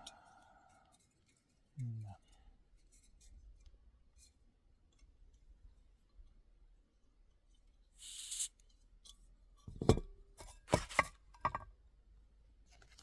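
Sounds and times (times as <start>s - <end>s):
short hiss: 8.0s - 8.6s
cookware knocks and clinks: 9.7s - 10.1s, 10.7s - 11.7s.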